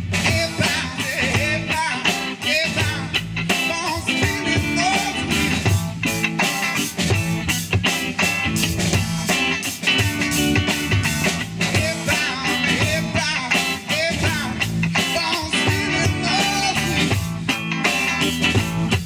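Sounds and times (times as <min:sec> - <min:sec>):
rock band playing: 0:00.0 - 0:19.0.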